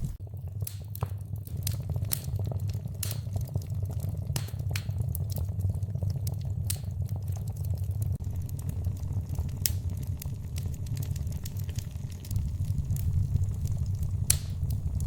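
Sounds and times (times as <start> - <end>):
fire pops and snaps: 0.0 - 15.0
low rumble of burning fire: 0.0 - 15.0.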